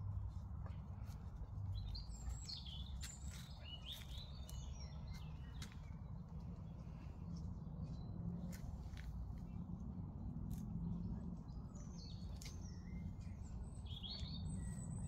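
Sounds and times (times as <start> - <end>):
small birds chirping: 0.6 - 9.9, 10.5 - 15.0.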